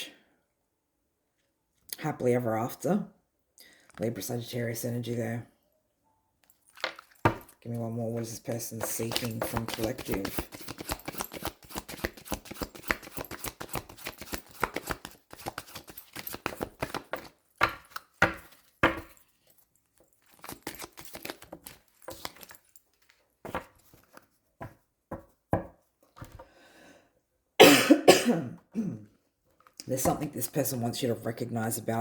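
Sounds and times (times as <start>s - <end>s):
cards being shuffled: 8.4s - 19.1s, 20.2s - 25.2s
person coughing: 27.6s - 29.1s.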